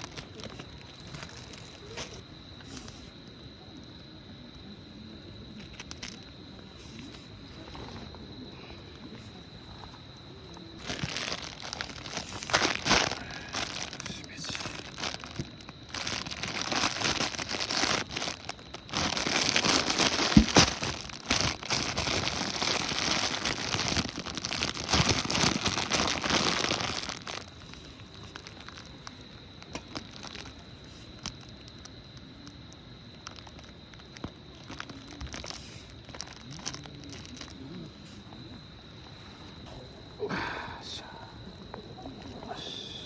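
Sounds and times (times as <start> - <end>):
plastic packaging crinkling: 0.0 - 2.0, 5.6 - 6.2, 10.8 - 30.6, 31.2 - 31.9, 33.2 - 37.6.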